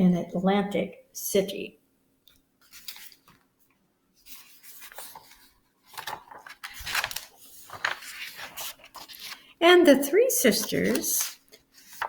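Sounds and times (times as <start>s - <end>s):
paper pages rustling: 2.6s - 3.5s, 4.2s - 9.6s, 10.4s - 12.0s.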